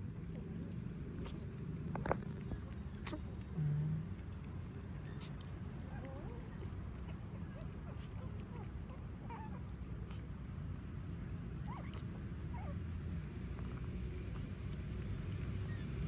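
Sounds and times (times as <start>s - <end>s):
puppies squeaking and whimpering: 0.6s - 10.3s, 11.6s - 12.8s, 15.3s - 16.0s.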